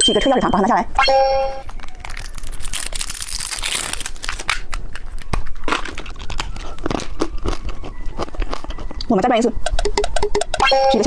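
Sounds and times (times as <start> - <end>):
plastic wrapper crinkling and tearing: 1.6 - 9.0.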